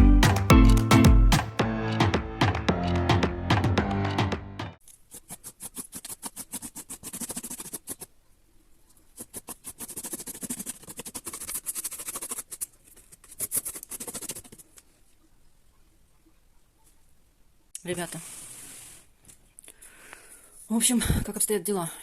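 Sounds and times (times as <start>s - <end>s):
rapid scratching: 5.1s - 8.1s, 9.2s - 14.8s.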